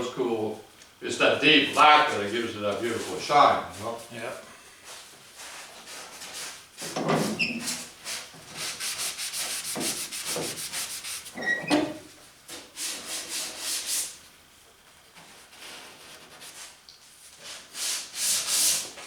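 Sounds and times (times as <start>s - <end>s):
sandpaper rubbing on car body: 7.2s - 11.4s, 12.8s - 14.2s, 17.5s - 19.0s.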